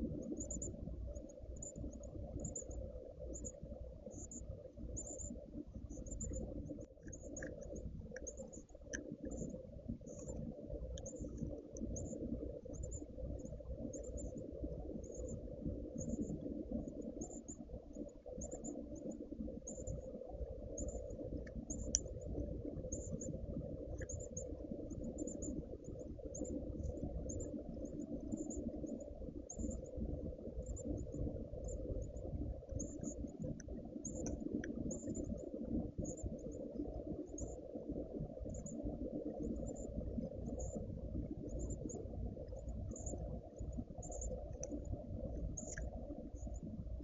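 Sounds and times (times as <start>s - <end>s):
faint clicks: 0.2s - 47.0s
insects chirping: 41.4s - 44.8s.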